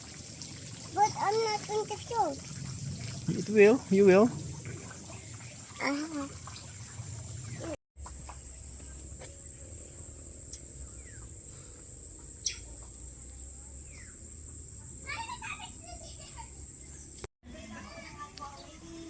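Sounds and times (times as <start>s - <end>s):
insects droning: 0.2s - 17.2s
bird chirps: 12.3s - 12.9s, 13.8s - 14.2s.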